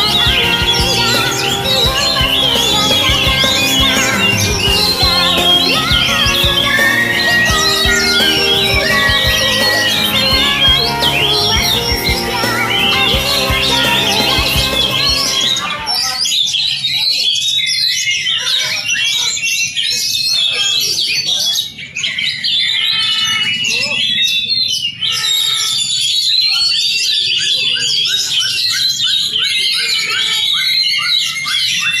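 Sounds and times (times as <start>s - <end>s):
songbird whistling and chattering: 0.0s - 16.6s.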